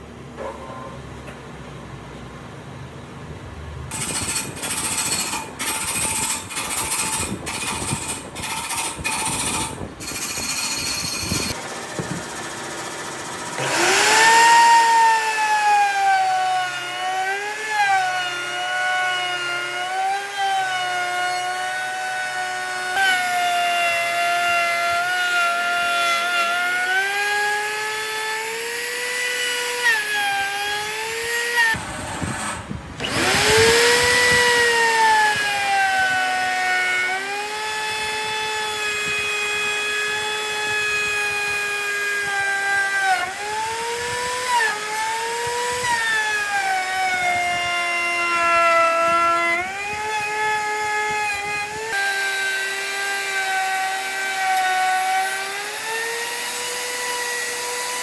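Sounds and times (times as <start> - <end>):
power tool motor whining on wood: 3.9 - 58.0.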